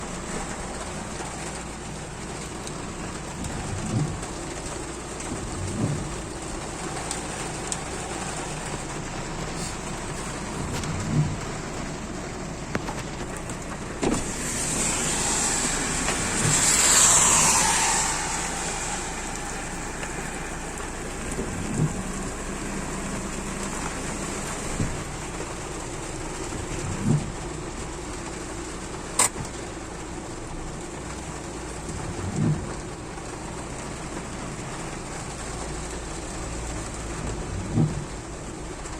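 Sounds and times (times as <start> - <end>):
steady rain hiss: 0.0 - 38.9
vehicle passing on wet road: 0.0 - 38.9
short dull thumps: 2.4 - 12.0.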